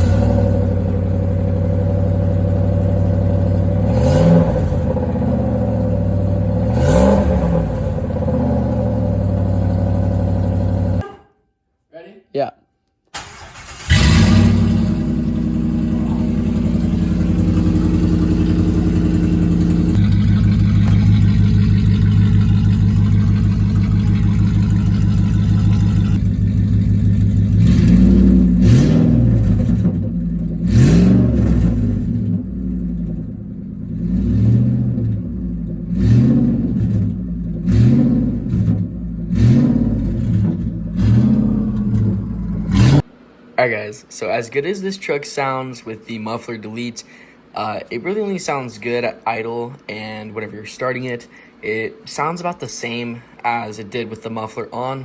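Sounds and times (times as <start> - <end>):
car engine idling: 0.0 - 11.0, 13.2 - 43.4
engine throttle blips: 0.0 - 11.1, 13.2 - 43.4.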